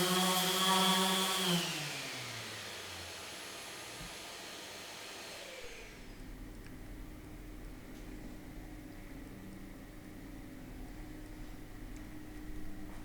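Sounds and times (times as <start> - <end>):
power tool motor spinning down: 0.0 - 6.2.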